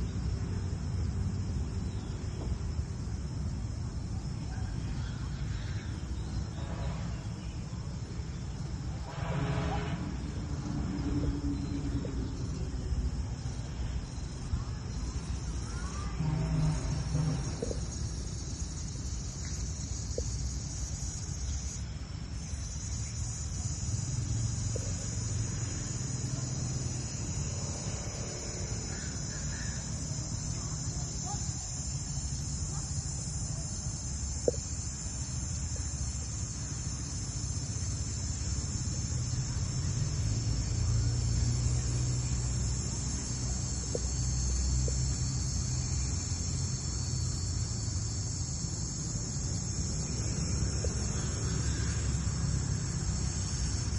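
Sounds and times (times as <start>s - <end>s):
high-pitched insect chorus: 0.0s - 53.9s.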